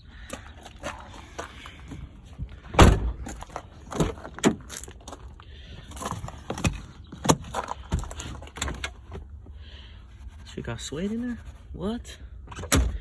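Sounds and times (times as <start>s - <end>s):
car parts knocking and rattling: 0.2s - 9.6s, 12.4s - 13.0s.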